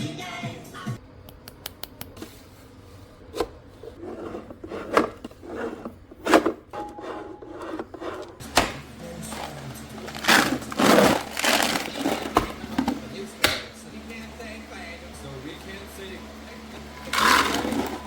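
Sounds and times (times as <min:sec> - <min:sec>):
plastic rubbing and scraping: 0:03.3 - 0:13.3, 0:17.1 - 0:18.0
plastic parts knocking: 0:06.1 - 0:13.7.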